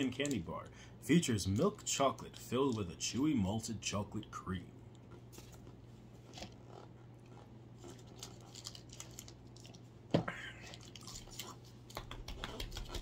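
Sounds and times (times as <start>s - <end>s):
low steady hum: 0.0s - 13.0s
chewing candy: 10.6s - 13.0s
mouth clicks and crackles: 10.6s - 13.0s.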